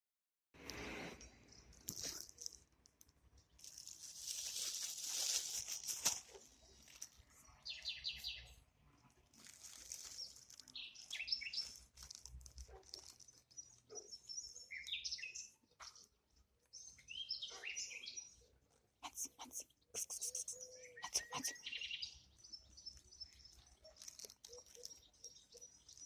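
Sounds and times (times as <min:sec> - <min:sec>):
rustling noise: 0:03.6 - 0:07.4
small songbirds chirping: 0:06.5 - 0:26.0.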